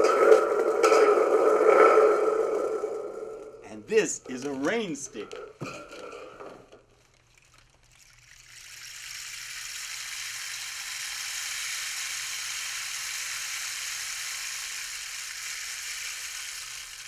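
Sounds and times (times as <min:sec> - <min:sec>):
rain stick trickling hiss: 0:06.8 - 0:17.0.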